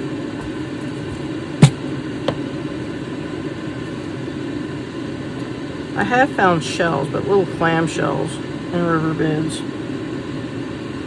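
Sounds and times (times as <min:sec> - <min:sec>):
low mechanical hum: 0:00.0 - 0:11.0
sharp tap: 0:01.6 - 0:02.4.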